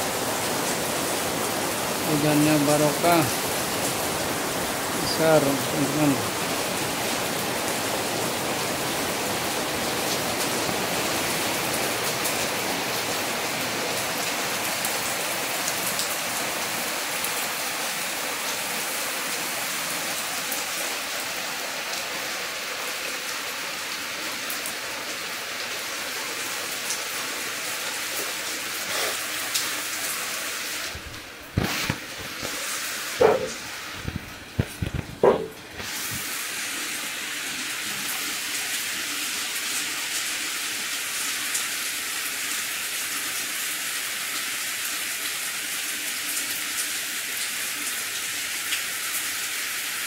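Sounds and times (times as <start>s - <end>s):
heavy rain on pavement and cars: 0.0s - 50.0s
sharp knocks: 34.6s - 35.6s.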